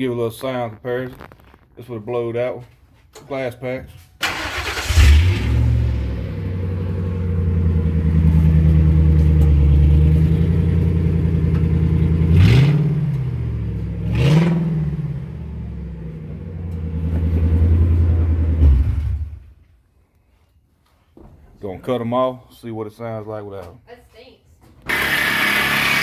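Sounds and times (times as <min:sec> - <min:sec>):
truck engine idling and revving: 0:04.4 - 0:19.5, 0:24.9 - 0:26.0.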